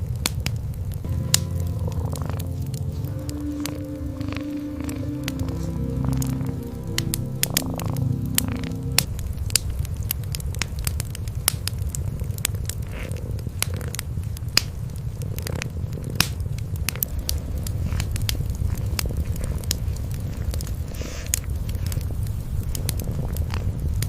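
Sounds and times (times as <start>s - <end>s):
wood fire crackling: 0.0s - 24.0s
cats purring: 1.4s - 9.1s, 12.1s - 14.4s, 15.0s - 24.0s.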